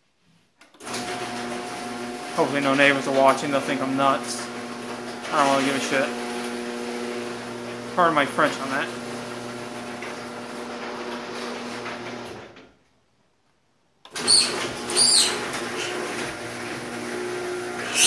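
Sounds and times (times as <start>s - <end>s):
garage door opener motor humming: 0.8s - 12.7s, 14.0s - 18.0s
high chirping squeals: 14.2s - 15.4s.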